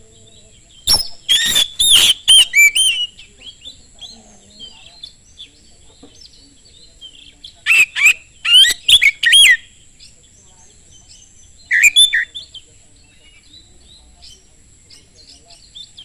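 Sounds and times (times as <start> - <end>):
soft bird chirps: 0.0 - 16.0
bird singing whistled phrases: 0.8 - 5.5, 7.0 - 9.7, 11.0 - 16.0.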